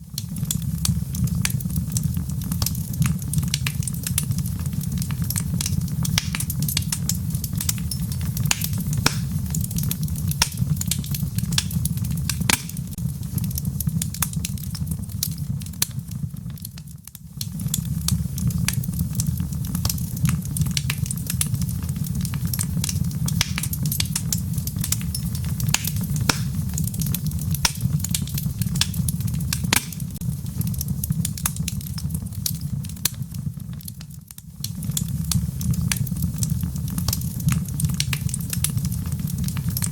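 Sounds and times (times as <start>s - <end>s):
wood fire crackling: 0.0s - 39.9s
rain falling: 1.0s - 15.2s, 18.0s - 32.7s.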